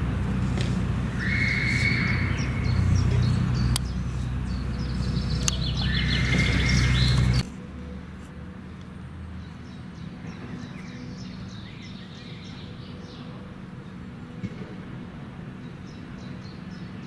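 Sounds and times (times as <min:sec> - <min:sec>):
steady low rumble: 0:00.0 - 0:16.2
songbird singing with trill: 0:00.4 - 0:07.4, 0:09.4 - 0:14.3.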